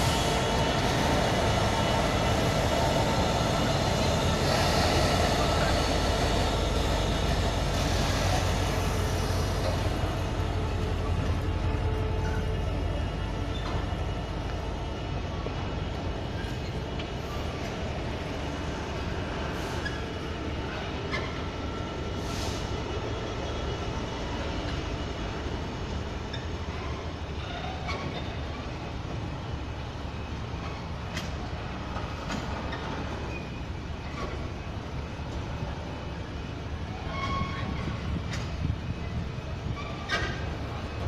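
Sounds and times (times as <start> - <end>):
wheels rolling on rail: 0.0 - 41.0
faint wheel squeals: 19.6 - 20.3, 36.9 - 38.5.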